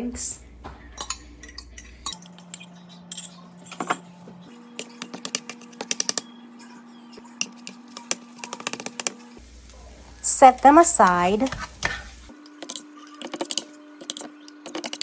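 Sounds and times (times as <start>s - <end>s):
eggs frying: 7.3s - 15.0s.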